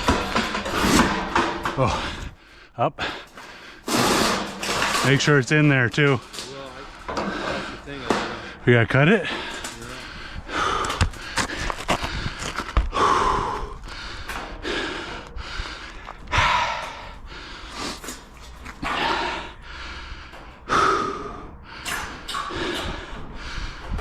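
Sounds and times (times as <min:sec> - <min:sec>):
heavy laboured breathing: 0:00.0 - 0:24.0.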